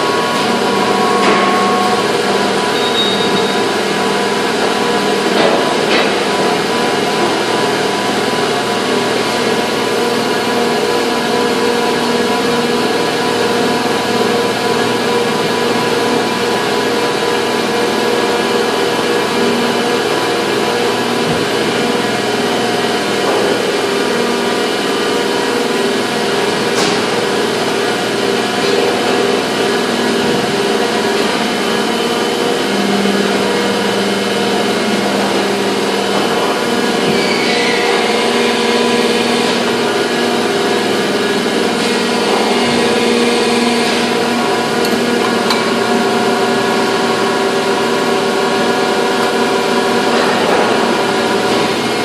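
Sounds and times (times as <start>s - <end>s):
industrial machinery humming: 0.0s - 52.0s
short falling squeal: 2.7s - 3.7s, 37.2s - 38.1s.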